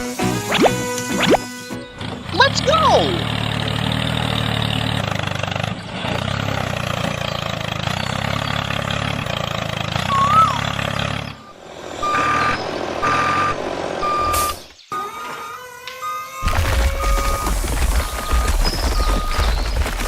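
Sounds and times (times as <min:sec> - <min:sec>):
truck engine running: 0:00.0 - 0:14.9, 0:16.4 - 0:20.0
reversing alarm beeping: 0:10.1 - 0:19.8.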